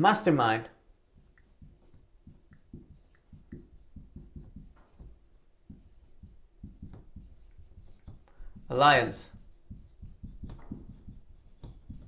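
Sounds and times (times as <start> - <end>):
handwriting scratching: 1.1 - 12.0.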